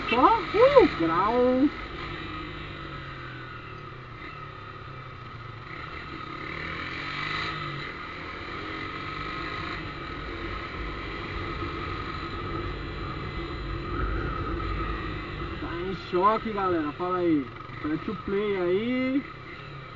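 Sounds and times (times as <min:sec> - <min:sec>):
motorcycle engine drone: 0:00.0 - 0:19.9.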